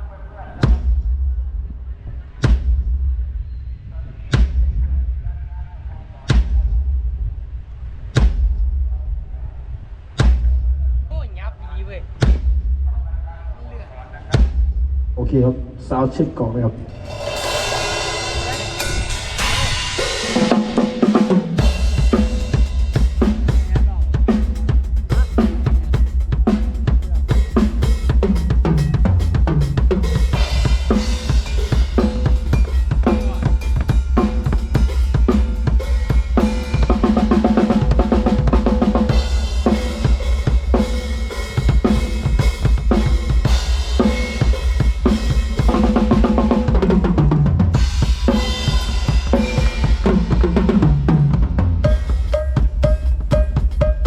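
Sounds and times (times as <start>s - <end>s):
drum kit groove: 10.1s - 11.2s, 12.0s - 12.9s, 14.3s - 15.4s, 16.8s - 54.0s.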